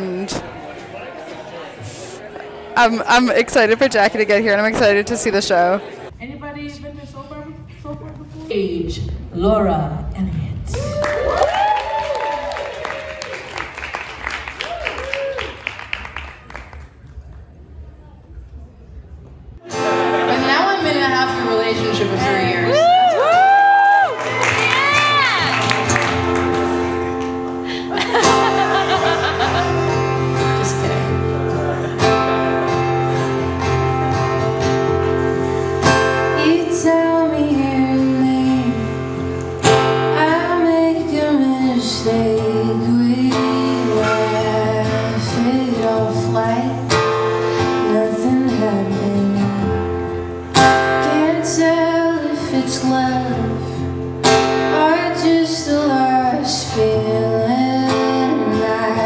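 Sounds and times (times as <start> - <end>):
strummed acoustic guitar: 19.6 - 22.8, 24.2 - 59.0
woman singing: 20.3 - 23.4, 36.2 - 39.2, 40.0 - 49.9, 50.8 - 53.9, 54.6 - 59.0.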